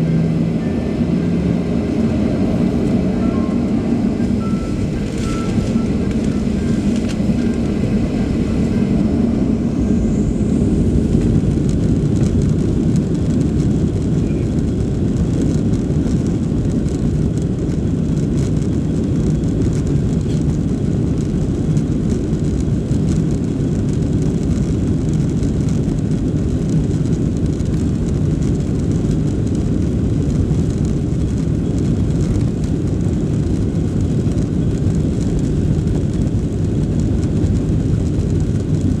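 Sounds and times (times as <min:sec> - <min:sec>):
low hum: 0:00.0 - 0:24.9
jet engines rushing rumble: 0:00.0 - 0:39.0.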